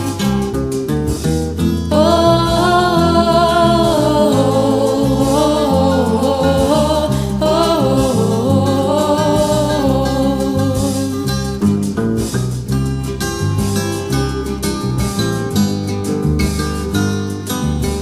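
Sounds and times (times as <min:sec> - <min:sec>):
instrumental accompaniment with bass: 0:00.0 - 0:18.0
woman singing with vibrato: 0:01.9 - 0:11.6.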